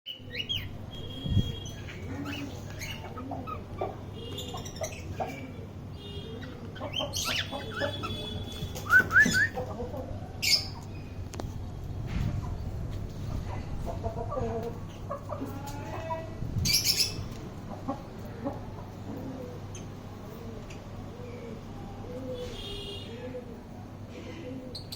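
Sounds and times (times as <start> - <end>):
cockatiels chirping and calling: 0.1 - 5.5, 6.4 - 8.4.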